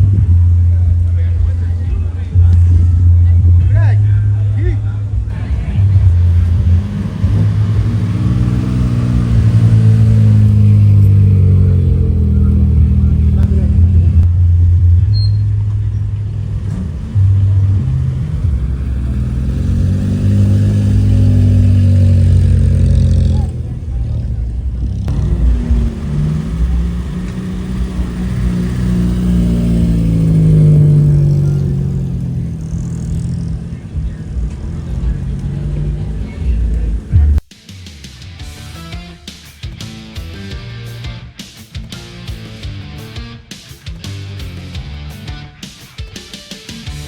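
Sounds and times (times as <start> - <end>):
car engine accelerating: 0.0 - 37.5.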